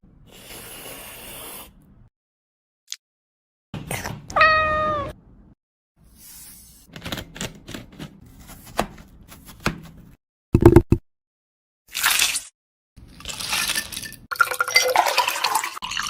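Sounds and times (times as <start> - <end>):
cat meowing: 4.3 - 5.2.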